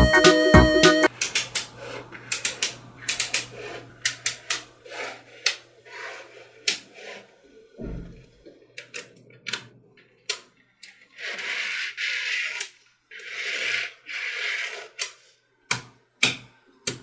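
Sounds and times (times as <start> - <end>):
electronic music: 0.0 - 1.1
faint steady hum: 0.0 - 11.0.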